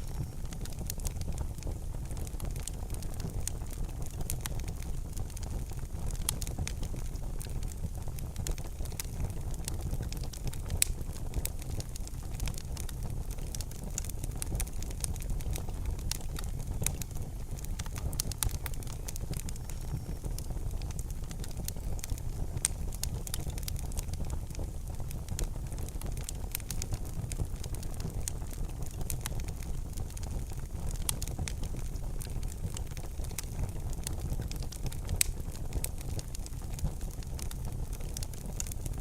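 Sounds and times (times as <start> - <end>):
wood fire crackling: 0.0 - 39.0.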